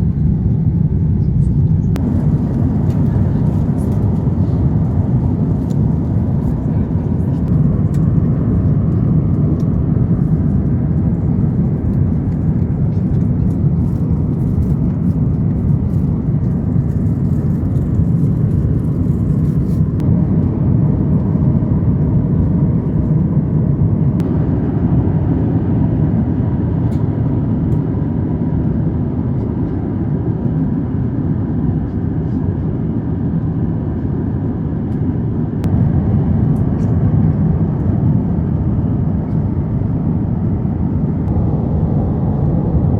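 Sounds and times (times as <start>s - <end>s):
aircraft cabin engine rumble: 0.0s - 42.9s.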